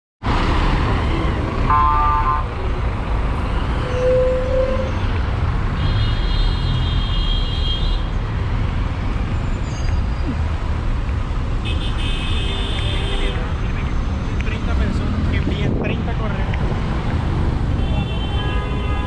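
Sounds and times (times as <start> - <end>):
city street traffic: 0.2 - 19.0
car horn toot: 1.7 - 2.5.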